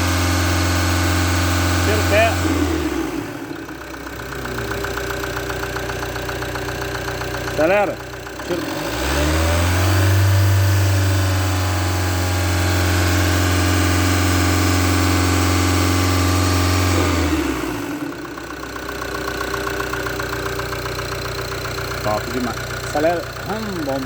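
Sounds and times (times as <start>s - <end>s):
diesel engine revving and idling: 0.0s - 24.0s.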